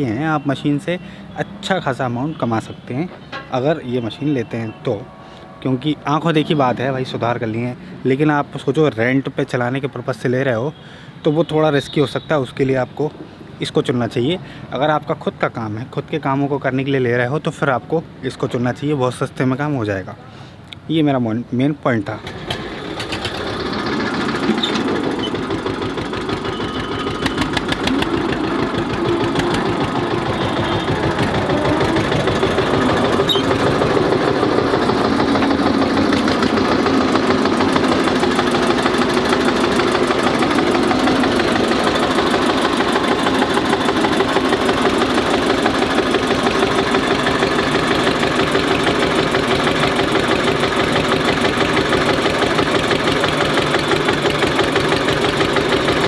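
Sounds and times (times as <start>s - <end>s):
diesel tractor engine idling: 22.1s - 56.0s.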